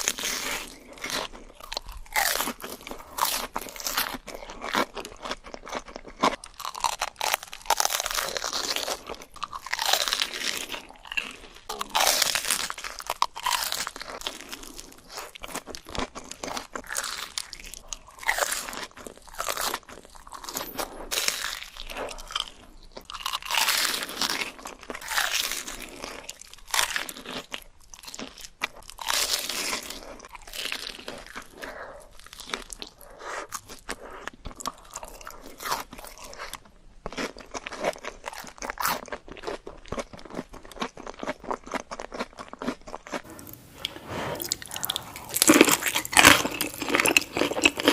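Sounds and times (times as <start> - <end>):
crunchy food chewing: 0.0 - 47.9.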